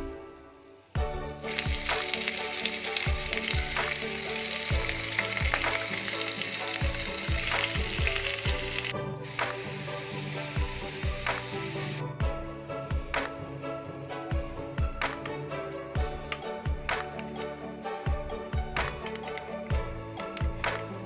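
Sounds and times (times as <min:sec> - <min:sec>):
food sizzling in hot oil: 0:01.0 - 0:12.0.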